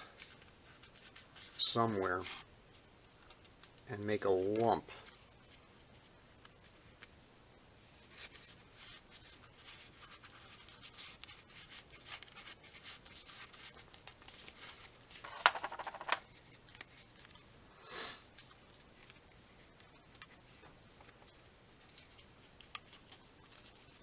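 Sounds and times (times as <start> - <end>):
rubbing and scratching: 8.0 - 17.4
short hiss: 17.7 - 18.3.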